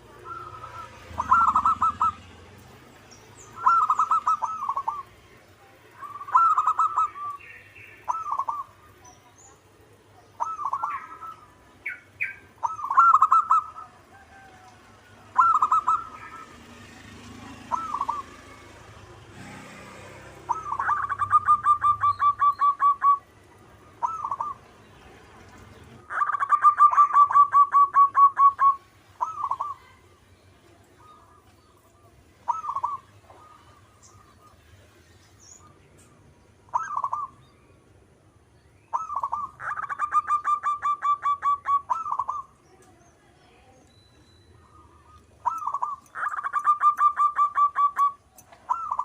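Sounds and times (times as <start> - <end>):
dove cooing: 0.0 - 2.6, 3.4 - 5.3, 6.0 - 9.0, 10.3 - 24.7, 25.9 - 30.1, 31.0 - 34.7, 36.7 - 37.4, 38.9 - 42.6, 44.7 - 49.0
dove trilling coos: 0.0 - 2.7, 3.3 - 5.4, 6.0 - 24.8, 25.8 - 30.2, 30.9 - 34.9, 36.6 - 37.5, 38.9 - 42.6, 44.6 - 49.0.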